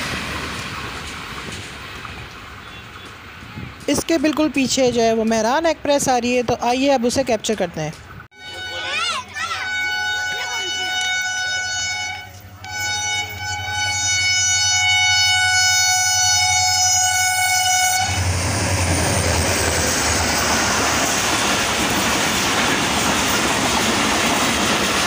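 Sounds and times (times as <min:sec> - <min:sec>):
train wheels rushing on rails: 0:00.0 - 0:25.0
train horn long note: 0:08.3 - 0:18.3.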